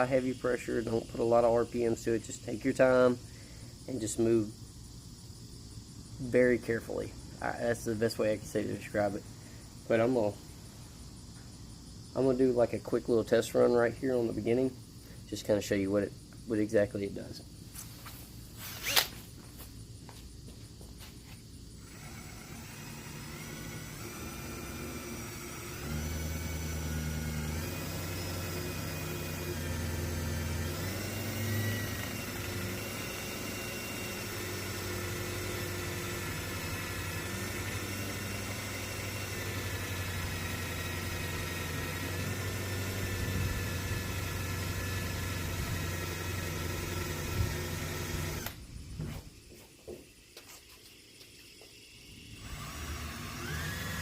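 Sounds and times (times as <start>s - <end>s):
drill motor whine: 0.0s - 2.4s, 18.6s - 19.2s, 21.8s - 54.0s.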